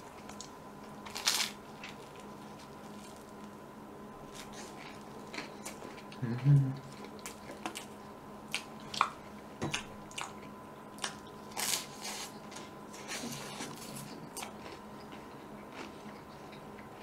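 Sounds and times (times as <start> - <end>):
faint electrical hum: 0.0 - 17.0
wet chewing and smacking: 6.8 - 17.0.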